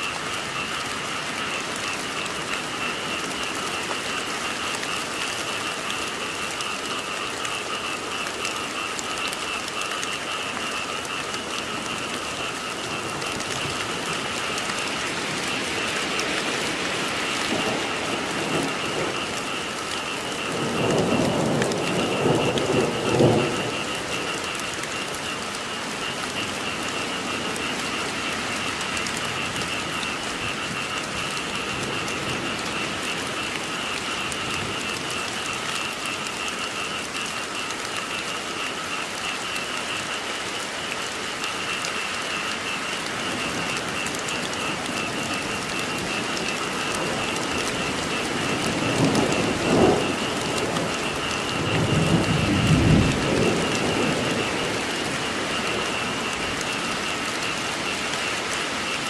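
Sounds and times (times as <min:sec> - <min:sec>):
frog chorus calling: 0:00.0 - 0:59.0
rain falling: 0:00.0 - 0:59.0
low thunder rumbling: 0:10.2 - 0:25.1, 0:43.2 - 0:57.0.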